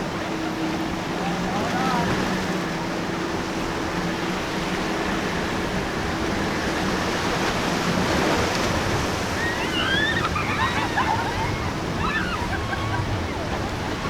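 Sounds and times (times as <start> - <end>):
waves breaking: 0.0 - 14.0
squiggly high calls: 9.4 - 13.0.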